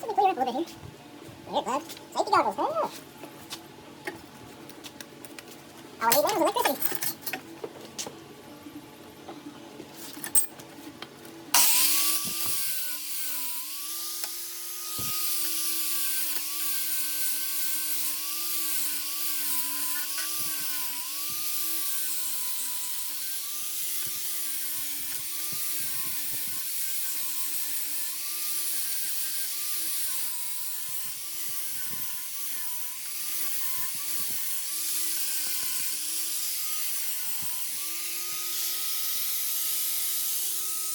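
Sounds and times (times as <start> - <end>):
power tool cutting steel: 11.6 - 40.9.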